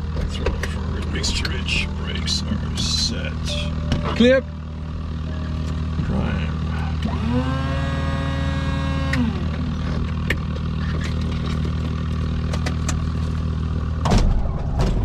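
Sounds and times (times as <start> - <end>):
electric fuel pump whine: 0.0 - 11.8
steady low hum: 0.0 - 15.0.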